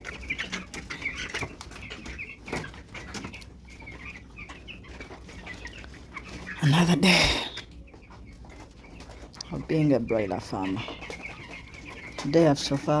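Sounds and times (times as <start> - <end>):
chickens peeping and chirping: 0.0 - 13.0.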